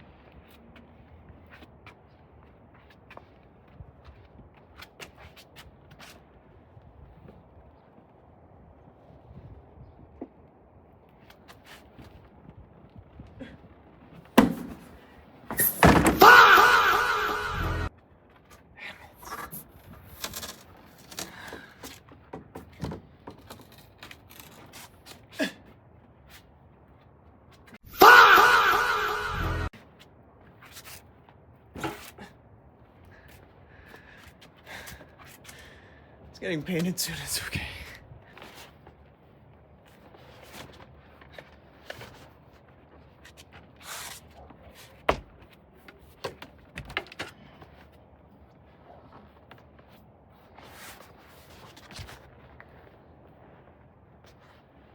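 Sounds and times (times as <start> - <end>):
clicks and knocks of car parts: 14.4 - 16.3
sound sliding down in pitch: 16.3 - 17.9, 27.9 - 29.7.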